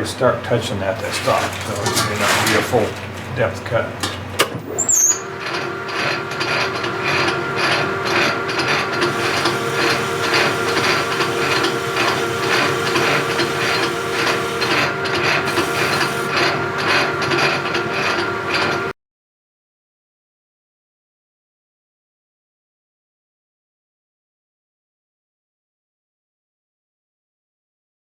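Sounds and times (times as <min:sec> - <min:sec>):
metal lathe gear whine and clatter: 0:05.2 - 0:16.5.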